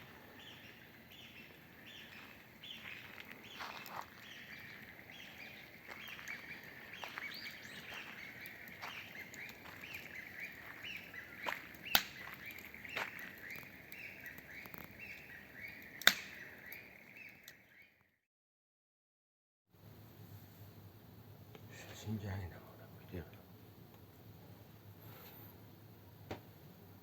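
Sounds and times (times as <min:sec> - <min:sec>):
small birds chirping: 0:00.0 - 0:18.2.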